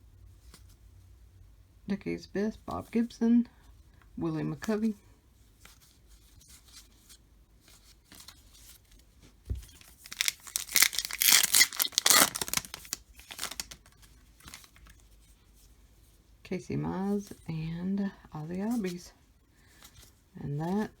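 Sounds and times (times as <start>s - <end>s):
quiet rustles: 2.6s - 10.6s
foil wrapper tearing and crinkling: 9.8s - 14.7s.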